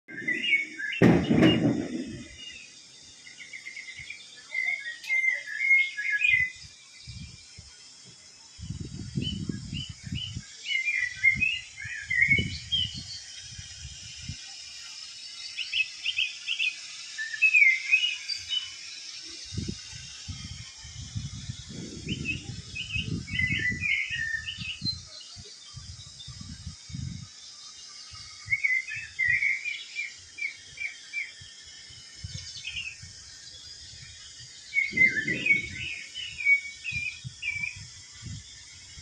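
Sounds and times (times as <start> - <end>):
small birds chirping: 0.1 - 39.0
steady hiss: 0.1 - 39.0
low rumbles: 1.0 - 2.4.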